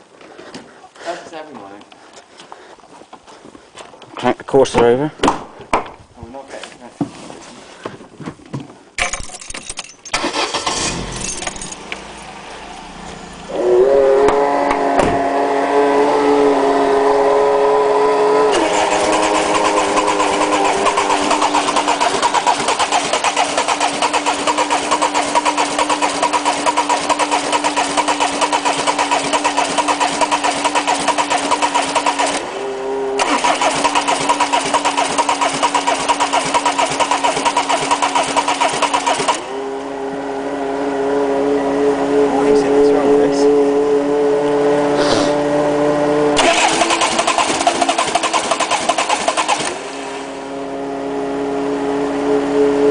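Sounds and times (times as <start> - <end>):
diesel engine cranking: 9.0 - 15.5, 18.1 - 39.6, 46.4 - 50.4.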